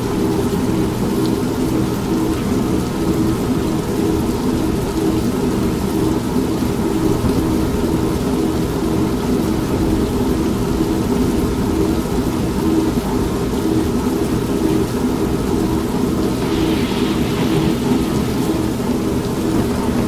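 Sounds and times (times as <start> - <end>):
washing machine pulsing hum: 0.0 - 20.0
rain hiss: 9.6 - 20.0.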